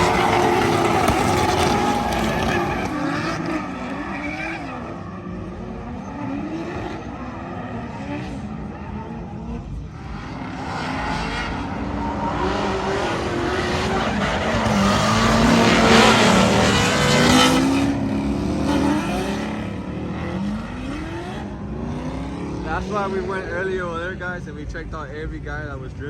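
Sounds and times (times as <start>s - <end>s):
tyres squealing: 0.0s - 4.8s
car engines revving: 0.0s - 26.0s.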